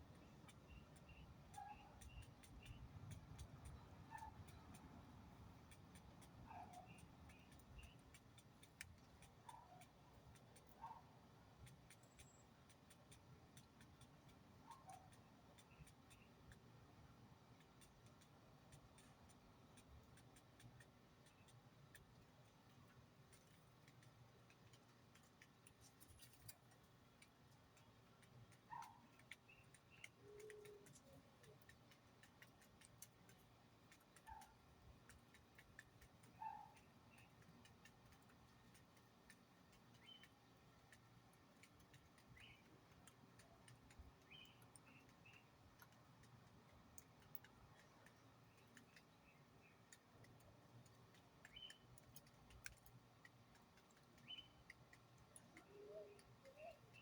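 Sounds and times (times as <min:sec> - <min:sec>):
faint bird chirps: 0:00.1 - 0:04.8, 0:06.0 - 0:08.2, 0:11.8 - 0:12.6, 0:14.6 - 0:16.6, 0:28.7 - 0:31.8, 0:36.3 - 0:37.5, 0:39.9 - 0:40.5, 0:42.2 - 0:42.8, 0:43.6 - 0:45.6, 0:51.4 - 0:52.4, 0:54.2 - 0:54.8, 0:55.4 - 0:57.0
light ticking: 0:00.1 - 0:57.0.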